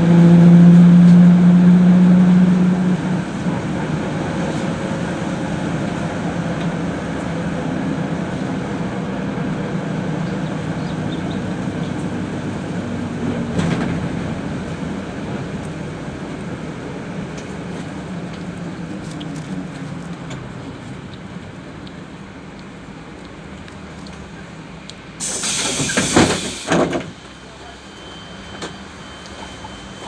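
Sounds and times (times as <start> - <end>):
bus engine and road rumble: 0.0 - 30.0
compressed air hiss: 25.2 - 26.8.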